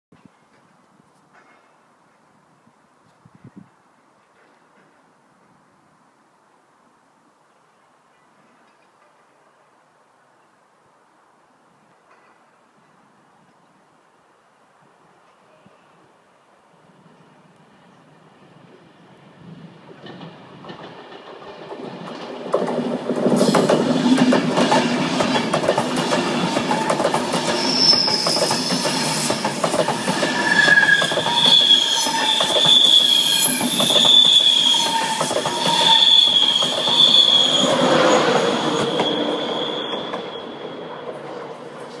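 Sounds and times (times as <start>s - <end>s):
train wheels clattering over rails: 19.9s - 42.0s
high-pitched wheel squeal: 27.4s - 41.4s.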